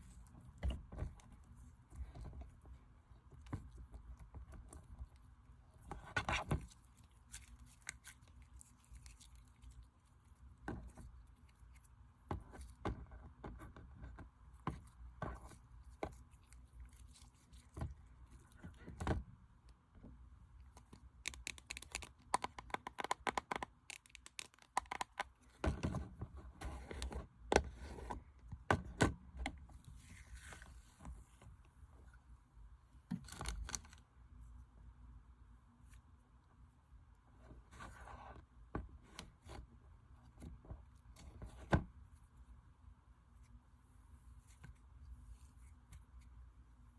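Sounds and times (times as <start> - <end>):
slime clicking and crackling: 21.2 - 25.3.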